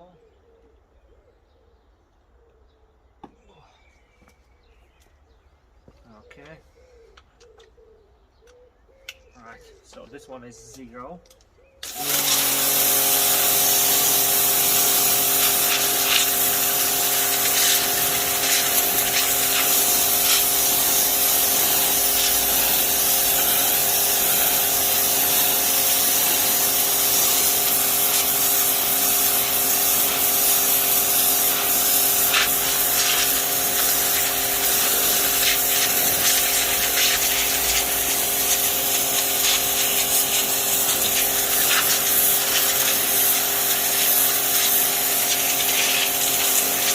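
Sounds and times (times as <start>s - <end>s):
hissing water jet: 11.8s - 46.9s
pressure washer motor humming: 11.8s - 46.9s.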